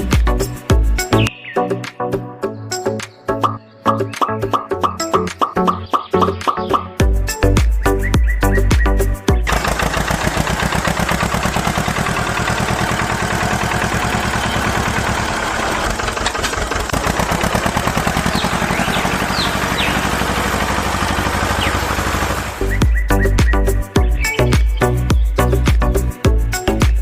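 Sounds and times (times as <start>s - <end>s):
small engine chugging: 9.4s - 23.1s.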